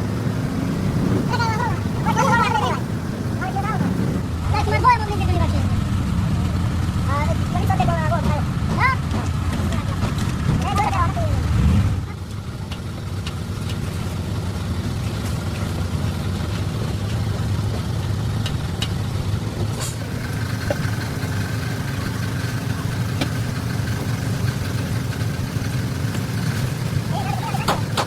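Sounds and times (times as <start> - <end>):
motor idling: 0.0 - 4.3, 20.0 - 28.0.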